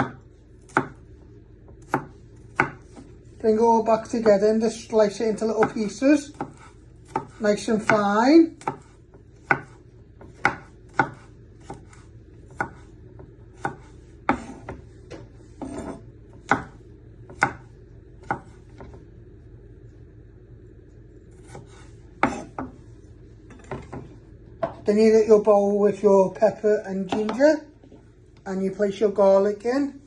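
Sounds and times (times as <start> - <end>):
knife chopping on chopping board: 0.0 - 1.0, 1.7 - 3.1, 5.6 - 18.9, 21.4 - 22.8.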